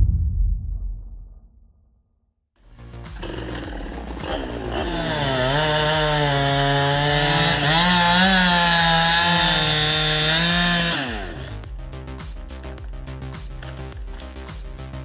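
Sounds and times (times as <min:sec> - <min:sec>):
chainsaw cutting wood: 0:02.8 - 0:11.7, 0:12.4 - 0:15.0.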